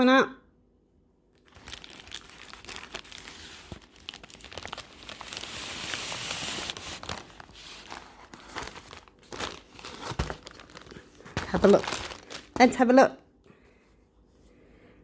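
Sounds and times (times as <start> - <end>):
plastic packaging crinkling: 1.4 - 12.8.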